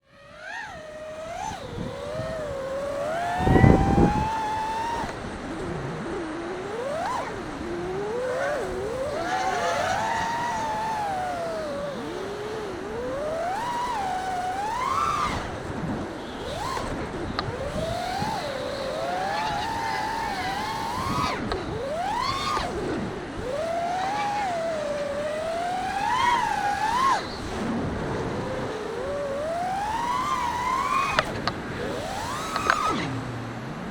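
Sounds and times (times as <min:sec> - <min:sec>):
drone motors whining: 0:00.0 - 0:33.9.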